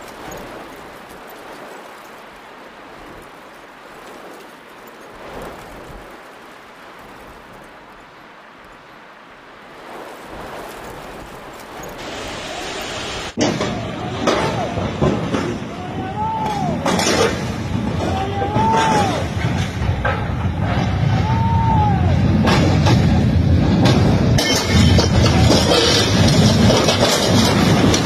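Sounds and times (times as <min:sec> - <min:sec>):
heavy rain hissing: 0:00.0 - 0:28.0
hail ticks: 0:22.4 - 0:28.0.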